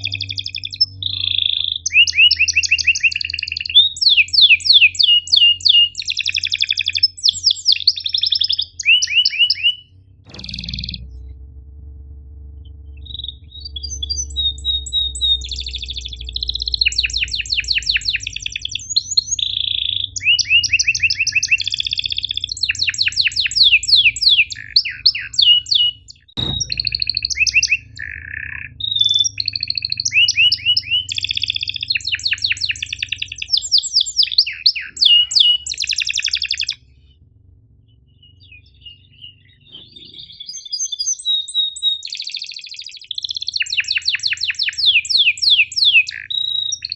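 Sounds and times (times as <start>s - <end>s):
canary singing: 0.0s - 11.3s, 12.7s - 46.9s
sharp click: 10.3s - 11.4s, 26.4s - 27.8s.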